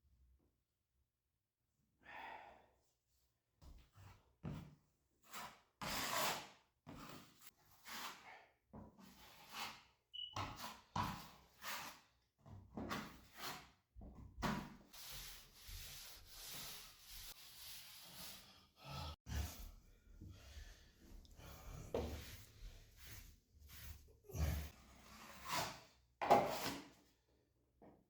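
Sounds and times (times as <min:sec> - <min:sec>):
hand tool rubbing drywall: 0:05.2 - 0:08.2, 0:09.0 - 0:12.1, 0:12.9 - 0:13.8, 0:14.5 - 0:26.9.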